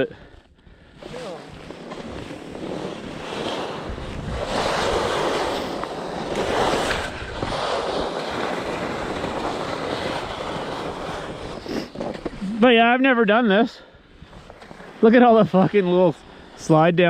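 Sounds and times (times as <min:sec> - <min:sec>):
wind buffeting microphone: 0:01.6 - 0:12.7.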